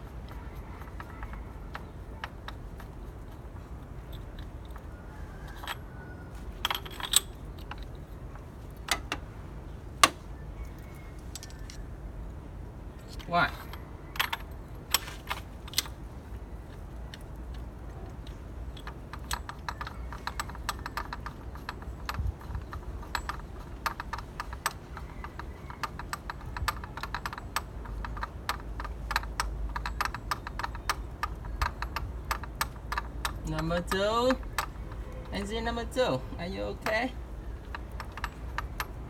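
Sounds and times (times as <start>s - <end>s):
ratchet wrench clicking: 18.8s - 35.6s, 36.7s - 39.0s.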